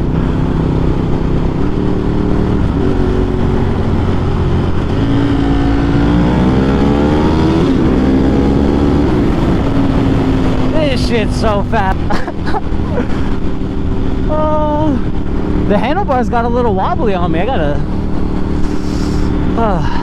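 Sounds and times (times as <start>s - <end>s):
motorcycle engine accelerating: 0.0s - 20.0s
riding wind noise: 0.0s - 20.0s.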